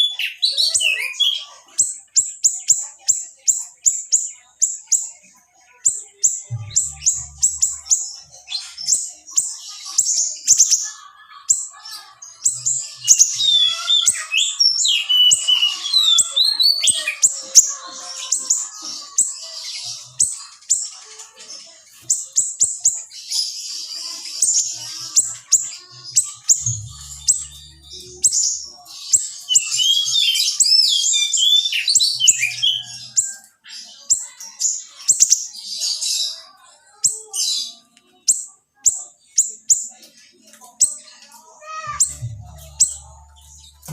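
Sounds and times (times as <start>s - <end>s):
songbird chirping and whistling: 5.9s - 10.9s, 12.3s - 20.8s, 22.0s - 34.3s, 41.9s - 43.9s.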